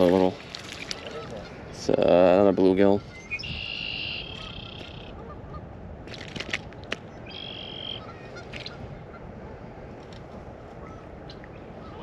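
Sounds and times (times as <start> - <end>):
bird high calls: 3.0 - 5.4, 7.2 - 8.8.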